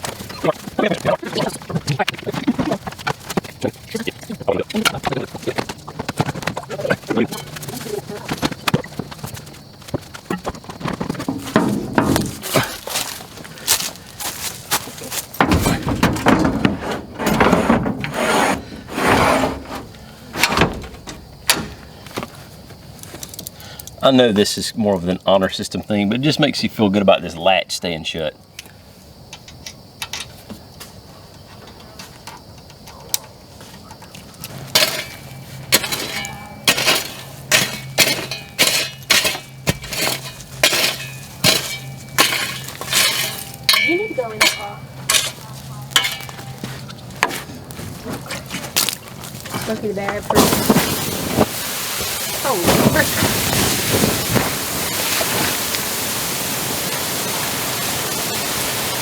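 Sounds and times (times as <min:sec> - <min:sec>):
gear scraping and rubbing: 0:00.0 - 0:21.4, 0:34.5 - 0:51.5
knocks: 0:10.2 - 0:13.1, 0:15.4 - 0:22.3
utensil clanking on a pan: 0:11.3 - 0:13.1, 0:34.7 - 0:46.8.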